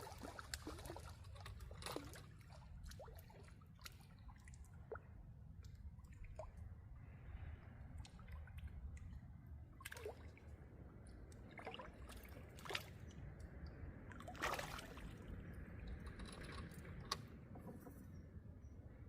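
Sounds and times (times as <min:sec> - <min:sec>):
water splashing and trickling: 0:00.0 - 0:18.0.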